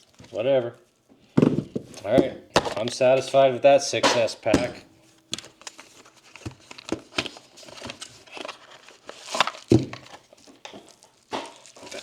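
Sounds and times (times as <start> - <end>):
handling battery packs: 1.4 - 3.4, 4.0 - 12.0.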